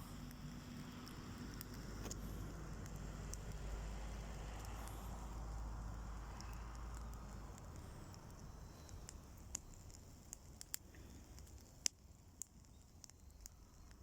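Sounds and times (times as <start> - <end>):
bonfire crackling and popping: 0.0 - 14.0
faint low hiss: 0.0 - 14.0.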